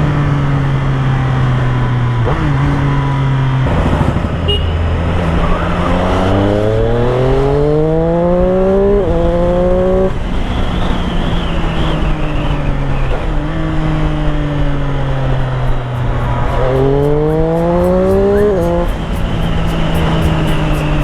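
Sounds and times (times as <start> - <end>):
motorcycle engine running: 15.1 - 21.0.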